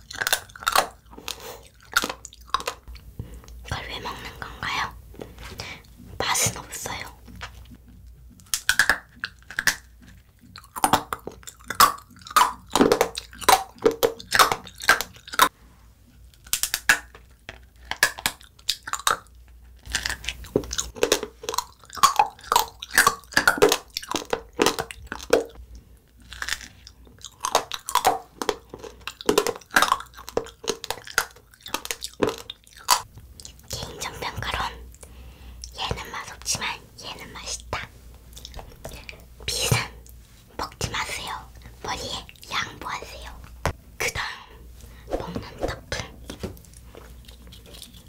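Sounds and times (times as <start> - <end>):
biting and chewing crunches: 0.0 - 3.0, 6.9 - 15.5, 16.2 - 33.7, 46.6 - 48.0.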